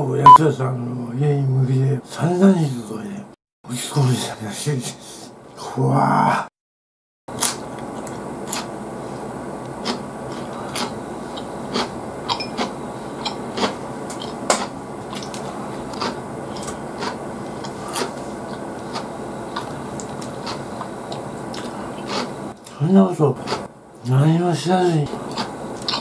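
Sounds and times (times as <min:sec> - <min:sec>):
person chewing food: 0:07.4 - 0:22.8, 0:23.4 - 0:23.7, 0:25.1 - 0:26.0.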